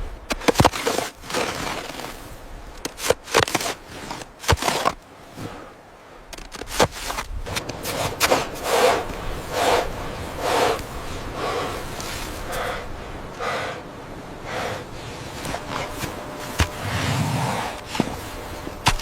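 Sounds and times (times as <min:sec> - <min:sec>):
person breathing hard: 0:08.4 - 0:19.0.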